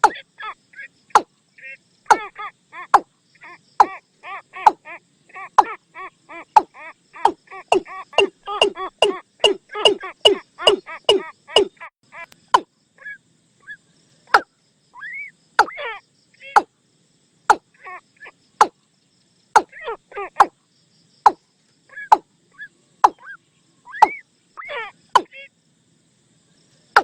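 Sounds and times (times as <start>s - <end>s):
bird clucking calls: 0.0s - 13.2s, 14.3s - 16.7s, 19.6s - 20.6s, 21.2s - 25.4s
sharp bird clicks: 6.6s - 12.7s, 23.0s - 23.3s.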